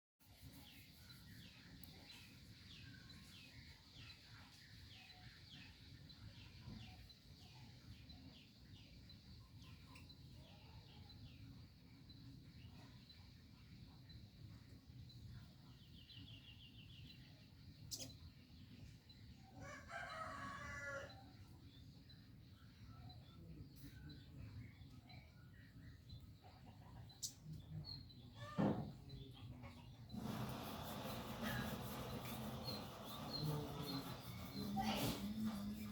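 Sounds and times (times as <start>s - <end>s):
young rooster crowing: 19.6s - 21.3s
bird chirping: 21.7s - 35.9s.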